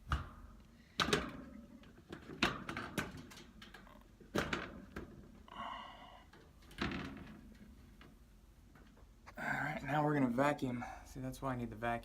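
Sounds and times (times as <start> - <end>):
air filter knocks and thuds: 0.0 - 3.4.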